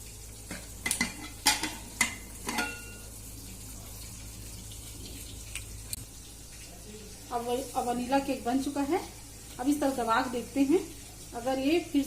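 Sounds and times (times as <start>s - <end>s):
metal lid clanking: 0.8s - 3.0s.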